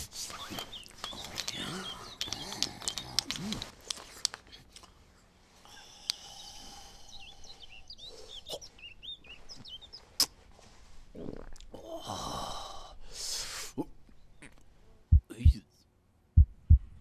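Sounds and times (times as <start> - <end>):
small bird chirping: 0.1 - 4.6, 5.7 - 10.3, 14.1 - 14.6
light clicks: 0.5 - 4.9.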